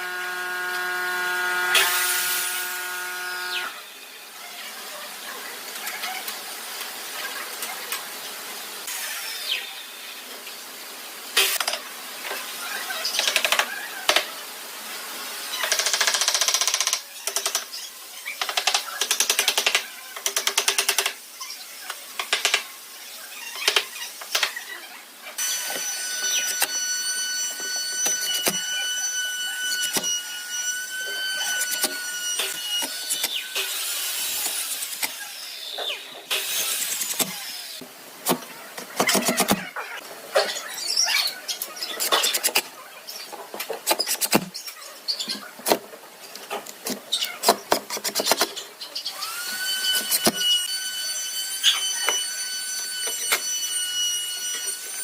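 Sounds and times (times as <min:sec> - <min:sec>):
power tool motor whine: 0:00.0 - 0:03.8.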